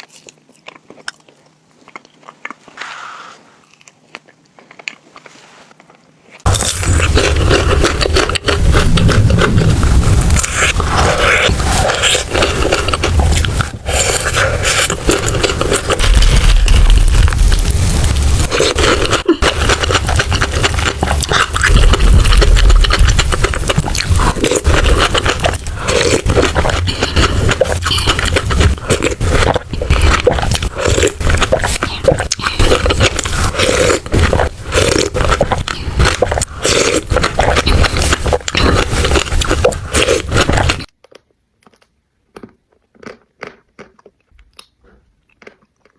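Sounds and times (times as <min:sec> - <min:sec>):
close chewing and mouth sounds: 0:00.0 - 0:45.9
deep rumble against microphone: 0:06.5 - 0:33.6.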